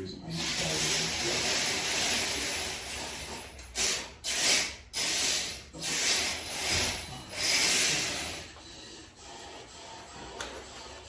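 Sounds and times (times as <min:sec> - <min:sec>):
power screwdriver driving screws: 0:00.4 - 0:08.4.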